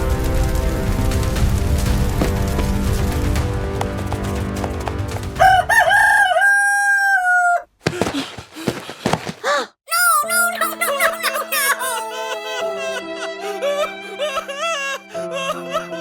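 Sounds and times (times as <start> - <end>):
background music: 0.0 - 6.5, 9.9 - 16.0
rooster crowing: 5.4 - 7.7.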